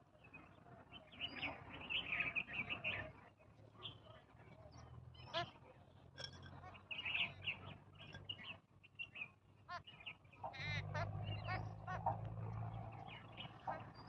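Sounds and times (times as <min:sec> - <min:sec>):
birds chirping: 0:00.3 - 0:14.0
nasal honking bird calls: 0:05.2 - 0:05.6, 0:06.2 - 0:08.4, 0:09.7 - 0:14.0.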